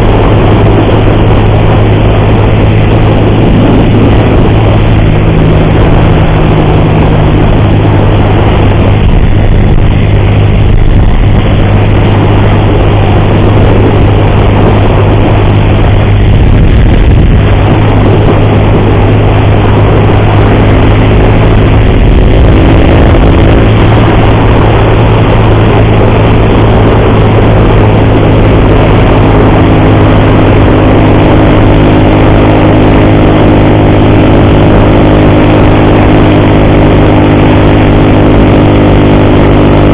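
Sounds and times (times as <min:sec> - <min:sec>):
loud wind rush: 0:00.0 - 0:39.9
motorcycle engine cruising: 0:00.0 - 0:39.9.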